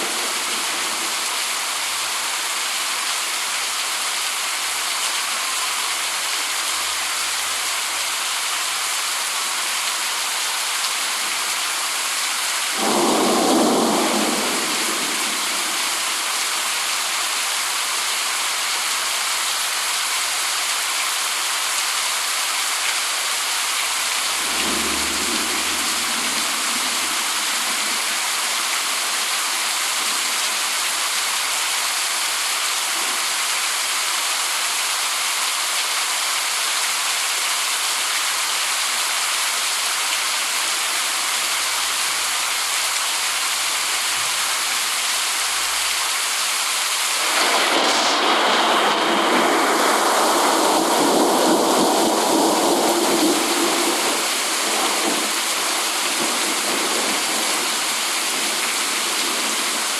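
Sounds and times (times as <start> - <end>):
steady rain hiss: 0.0 - 59.9
thunder rumbling: 12.8 - 16.0, 23.9 - 28.1, 47.2 - 55.3.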